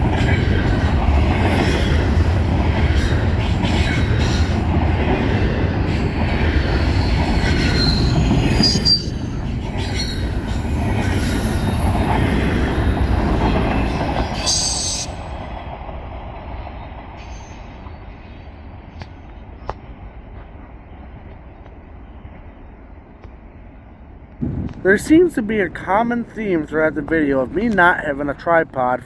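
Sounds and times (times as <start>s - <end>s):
rumble of train wheels on rail: 0.0s - 29.0s
thin wheel squeal: 7.6s - 9.2s.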